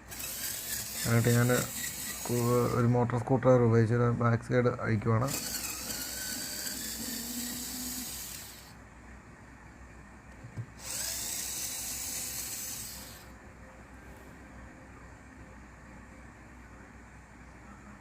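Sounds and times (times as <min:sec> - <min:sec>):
electric screwdriver whining: 0:00.0 - 0:02.8, 0:05.3 - 0:08.7, 0:10.8 - 0:13.3.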